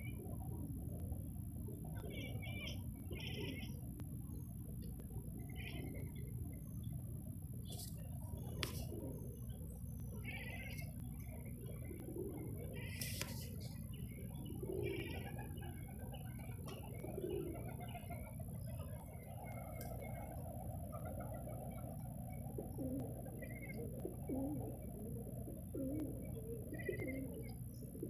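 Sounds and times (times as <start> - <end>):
small birds chirping: 1.8 - 28.0
dove cooing: 10.2 - 28.0.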